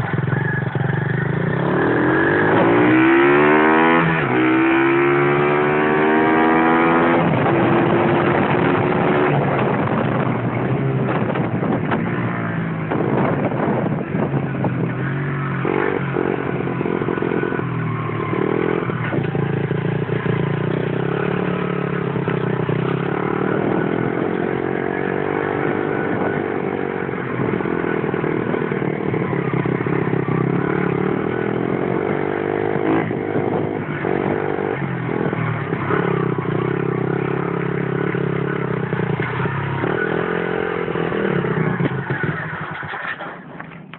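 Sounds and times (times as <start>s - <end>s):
pit bike engine at full throttle: 0.0s - 43.9s.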